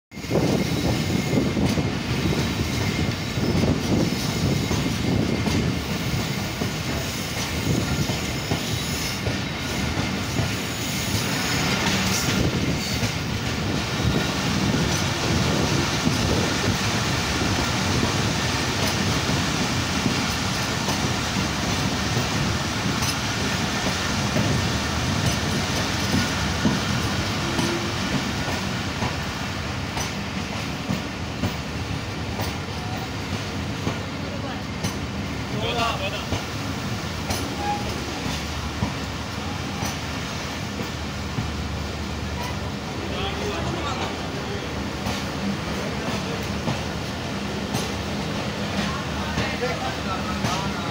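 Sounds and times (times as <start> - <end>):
train wheels rumbling: 0.1 - 50.9
clatter over rail joints: 37.2 - 39.0
faint high wheel squeal: 37.4 - 38.0.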